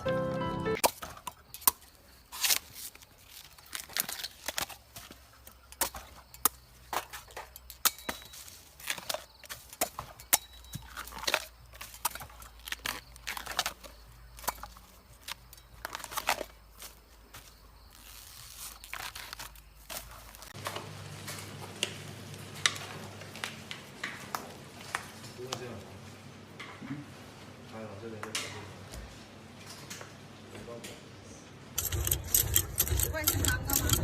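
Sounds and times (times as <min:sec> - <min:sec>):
brittle material crunching: 0:00.8 - 0:20.8.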